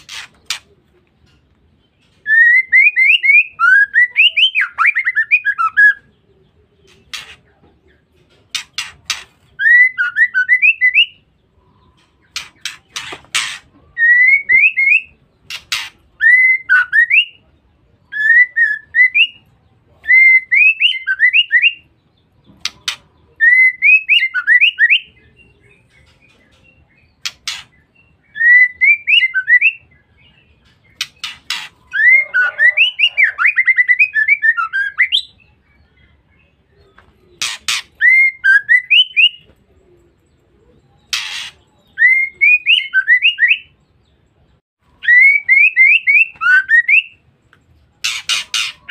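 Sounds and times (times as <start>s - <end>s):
bird whistling calls: 12.4s - 17.4s, 31.0s - 35.4s, 37.4s - 39.4s, 41.1s - 43.8s, 45.0s - 47.2s.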